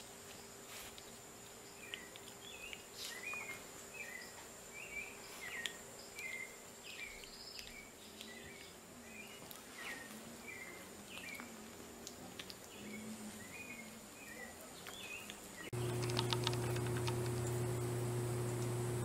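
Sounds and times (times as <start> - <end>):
bird chirping: 0.4 - 11.5, 12.6 - 17.7
clicks: 15.8 - 17.6
low hum: 15.8 - 19.0.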